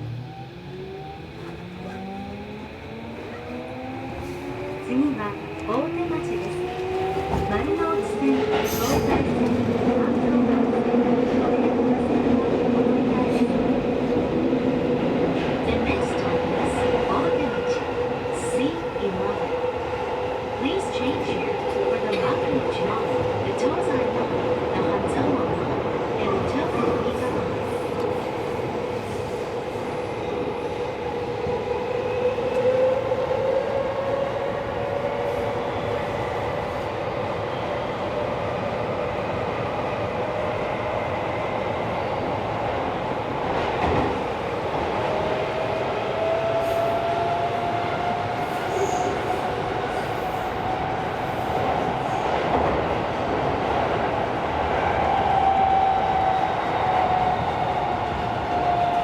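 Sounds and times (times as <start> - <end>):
subway wheels rumbling on rail: 0.0 - 59.0.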